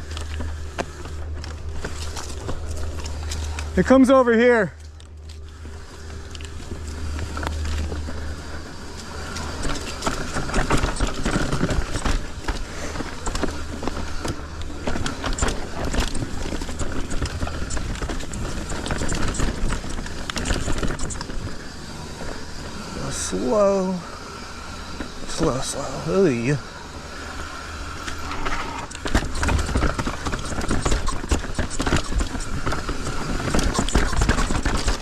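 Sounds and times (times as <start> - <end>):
tyres crunching over dirt and rocks: 0.0 - 24.0
bike chain and frame rattling: 0.0 - 35.0.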